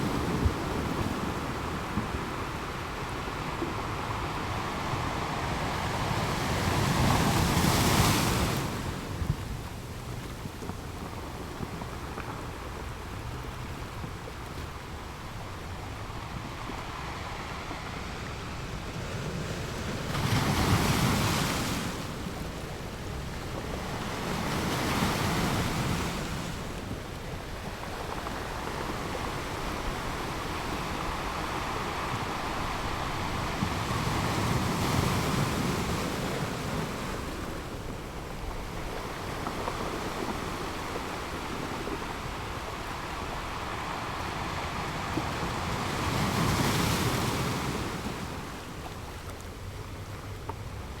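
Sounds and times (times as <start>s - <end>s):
ocean surf breaking on beach: 0.0s - 51.0s.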